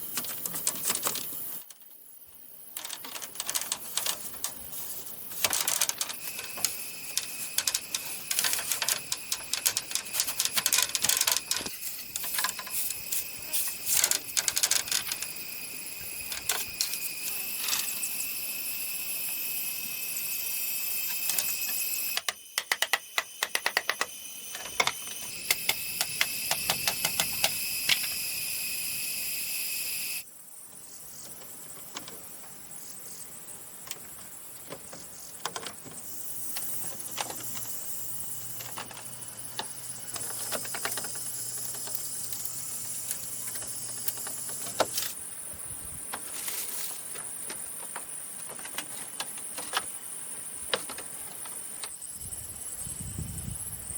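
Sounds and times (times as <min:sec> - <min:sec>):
sharp knocks and clicks on bamboo: 0:05.4 - 0:13.0, 0:21.1 - 0:28.1.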